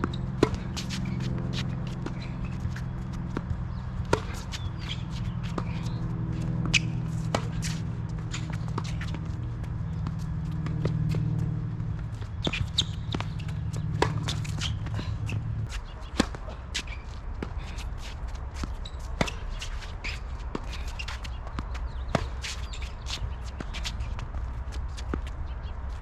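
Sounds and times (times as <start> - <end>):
shoes scuffing on court: 0.0 - 26.0
tennis ball impacts: 0.1 - 15.5.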